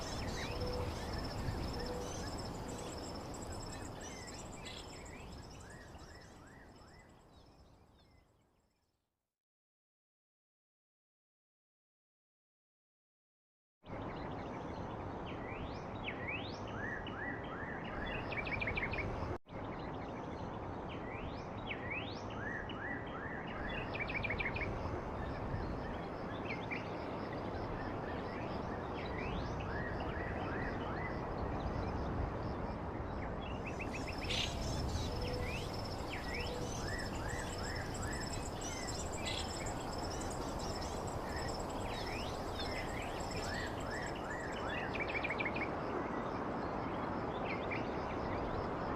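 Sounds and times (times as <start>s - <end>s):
steady background hiss: 0.0s - 6.2s, 33.7s - 45.4s
birds chirping: 33.7s - 44.7s.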